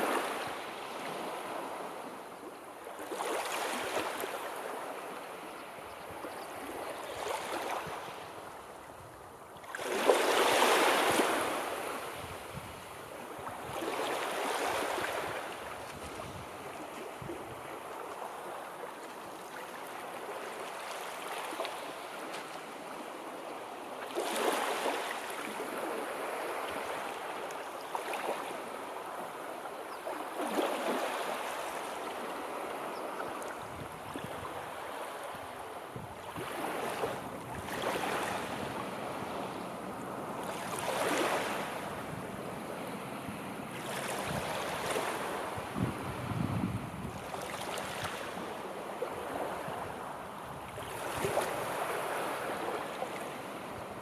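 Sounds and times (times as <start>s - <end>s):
sea waves breaking: 9.6s - 12.4s, 30.1s - 53.8s.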